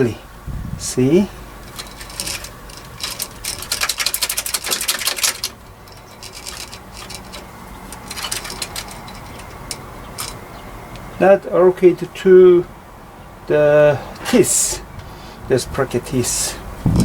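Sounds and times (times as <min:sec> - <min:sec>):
metallic chain clicking and rattling: 0:01.4 - 0:10.6.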